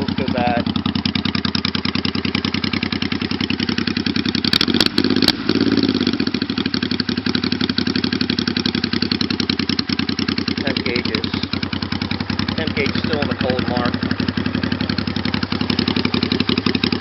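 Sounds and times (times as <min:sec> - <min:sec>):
motorcycle engine idling: 0:00.0 - 0:17.0
sharp clicks: 0:04.5 - 0:05.4.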